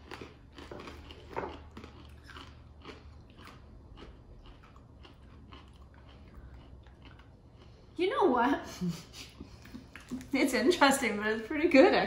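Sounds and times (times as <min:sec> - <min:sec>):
crunching and chewing snack: 0:00.0 - 0:08.0.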